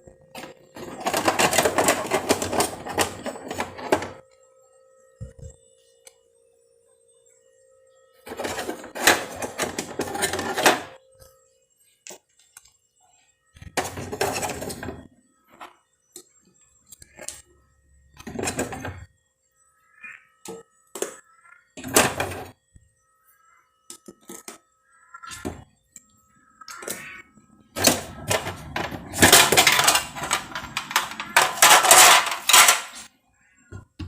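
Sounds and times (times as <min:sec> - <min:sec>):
household containers clattering: 0:00.4 - 0:04.2, 0:08.3 - 0:11.0, 0:13.8 - 0:15.0, 0:18.2 - 0:19.0, 0:21.8 - 0:22.5, 0:27.8 - 0:33.1
clicks and knocks: 0:27.8 - 0:33.1.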